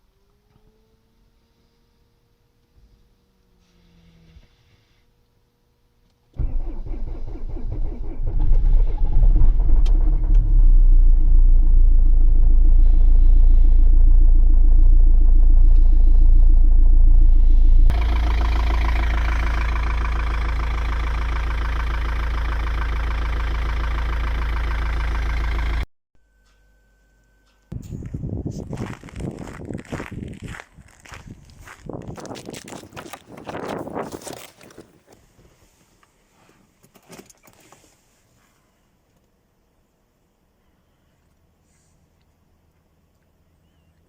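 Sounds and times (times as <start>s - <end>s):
diesel engine starting and running: 6.3s - 25.9s, 27.4s - 33.3s
clattery diesel engine running: 6.4s - 25.8s.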